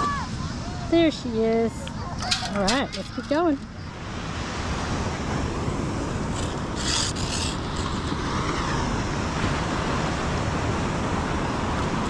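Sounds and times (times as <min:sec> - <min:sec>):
beach surf: 0:00.0 - 0:12.0
short rasping scrape: 0:06.3 - 0:08.0.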